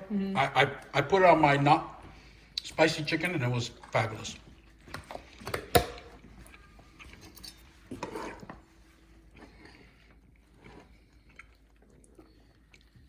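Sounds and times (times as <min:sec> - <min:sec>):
tableware knocks and handling: 0:05.4 - 0:06.1
tableware clinking: 0:05.5 - 0:08.5.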